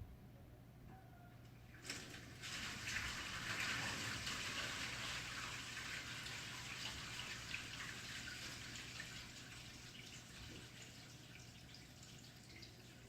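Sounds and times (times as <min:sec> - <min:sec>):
toilet water rushing through pipes: 0:01.8 - 0:13.0.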